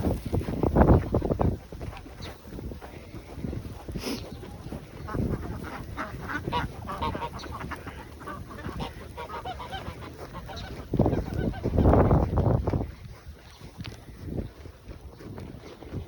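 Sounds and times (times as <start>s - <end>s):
wind gust on microphone: 0.0s - 16.0s
poultry calling: 0.1s - 12.3s.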